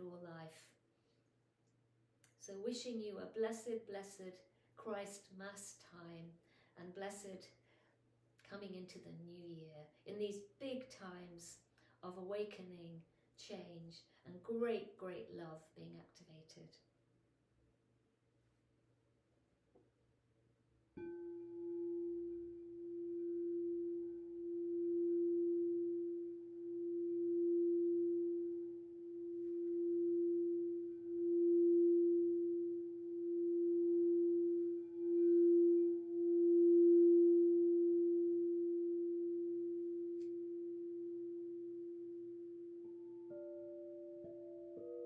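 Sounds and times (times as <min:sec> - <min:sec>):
crystal singing bowl tone: 0:21.0 - 0:45.0.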